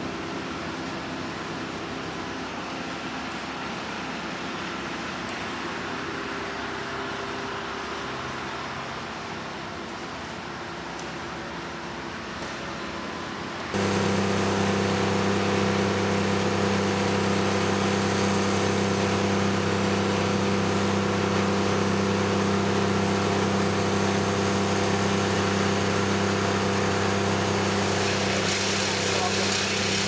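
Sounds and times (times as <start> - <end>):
motor humming steadily: 0.0 - 30.0.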